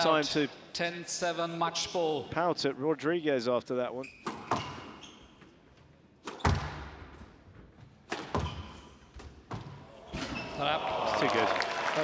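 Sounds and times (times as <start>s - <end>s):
squash ball cracking off rackets: 8.1s - 8.7s.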